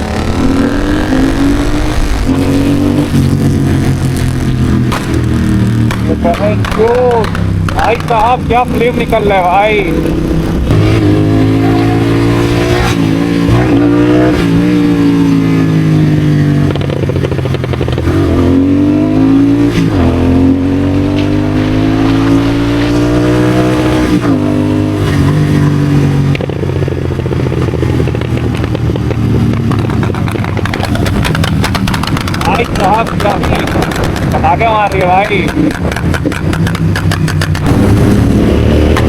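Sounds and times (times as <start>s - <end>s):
exhaust pops: 0.0s - 12.0s, 25.0s - 39.0s
motorcycle accelerating hard: 0.0s - 39.0s.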